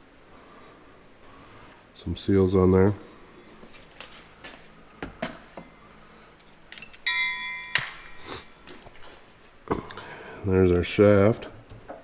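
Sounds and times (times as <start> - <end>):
metal part ringing: 6.4 - 8.7.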